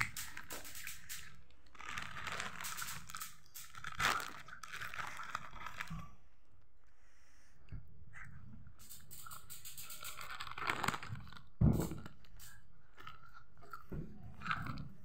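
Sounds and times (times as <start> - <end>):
crinkling and tearing clicks: 0.0 - 6.2, 9.1 - 15.0
crunching and chewing food: 3.7 - 6.2, 10.2 - 15.0.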